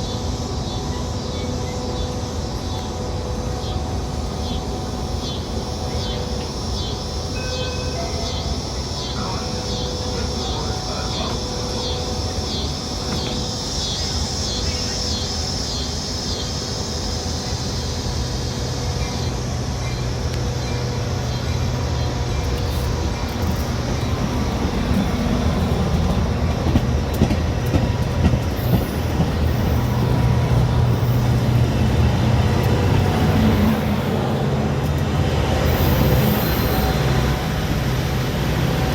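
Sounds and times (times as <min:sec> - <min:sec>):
train rumbling along track: 0:00.0 - 0:38.9
train wheel clicks: 0:22.4 - 0:33.8.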